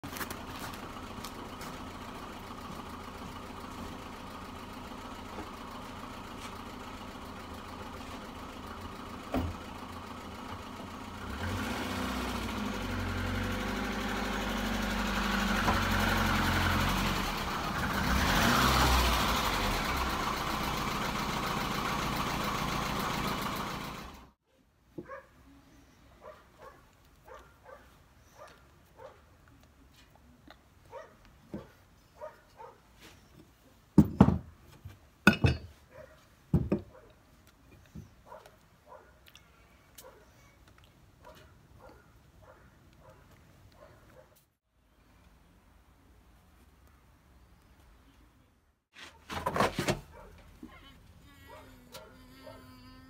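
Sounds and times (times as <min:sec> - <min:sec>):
car engine idling and revving: 0:00.1 - 0:24.4.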